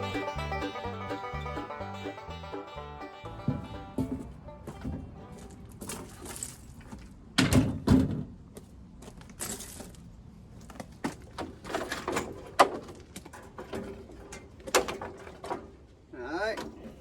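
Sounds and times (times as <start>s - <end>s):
knocks and clatter of hand work: 11.0s - 15.8s.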